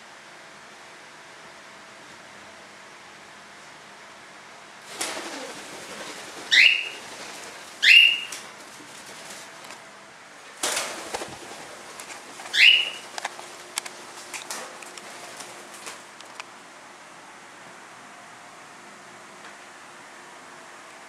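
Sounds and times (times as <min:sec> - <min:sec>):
rustling: 0:04.9 - 0:09.9, 0:10.5 - 0:16.4
bird giving rising chirps: 0:05.2 - 0:07.2, 0:07.8 - 0:08.4, 0:12.5 - 0:13.1.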